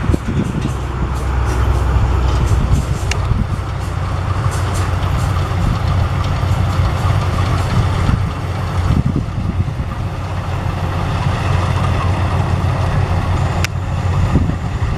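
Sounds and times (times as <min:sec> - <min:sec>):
combine harvester running: 0:00.0 - 0:14.9.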